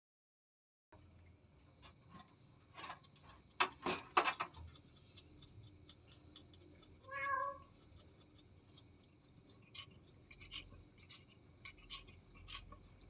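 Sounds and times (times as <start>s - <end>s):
cat meow: 7.0s - 7.7s.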